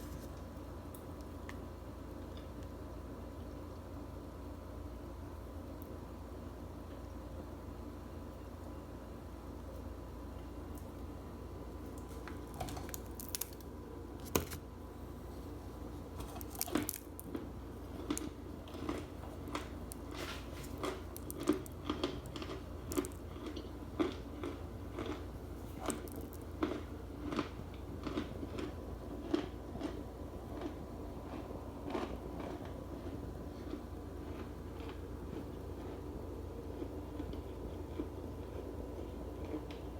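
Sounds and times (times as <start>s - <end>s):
crunchy food chewing: 11.8s - 14.6s, 15.4s - 39.9s.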